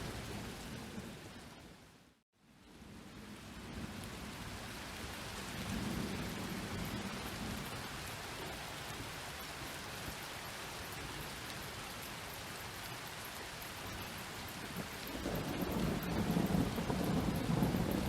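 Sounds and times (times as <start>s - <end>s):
steady rain falling: 0.0s - 18.0s
low thunder rumble: 2.8s - 9.1s, 14.5s - 18.0s.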